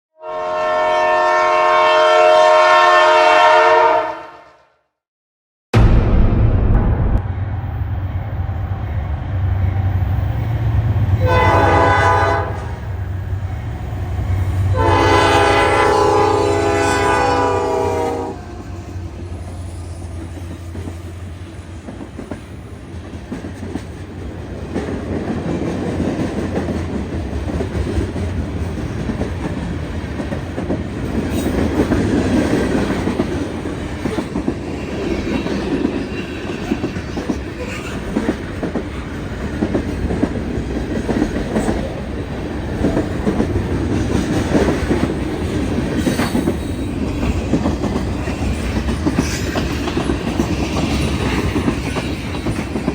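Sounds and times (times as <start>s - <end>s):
train rumble: 5.8s - 52.9s
train wheels clattering on rails: 19.9s - 52.9s.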